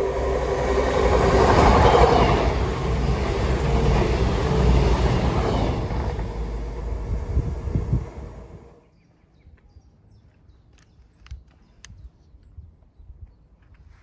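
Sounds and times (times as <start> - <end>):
diesel train engine: 0.0 - 8.8
train coaches rushing past: 0.0 - 8.8
train wheels rumbling: 0.0 - 8.8.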